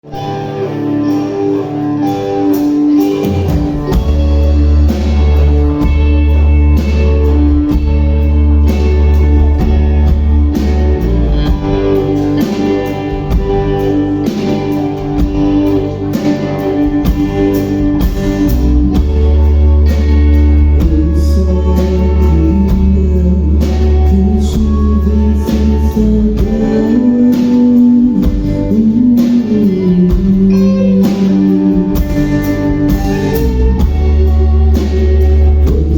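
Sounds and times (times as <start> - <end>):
guitars: 0.0 - 35.9
rock band playing live: 0.0 - 35.9
sustained bass notes: 0.0 - 35.9
steady drum beat: 1.1 - 35.9.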